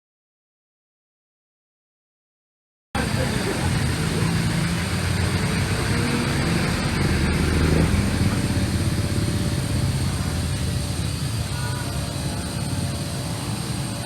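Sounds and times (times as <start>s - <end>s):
polishing machine humming: 3.0s - 14.0s.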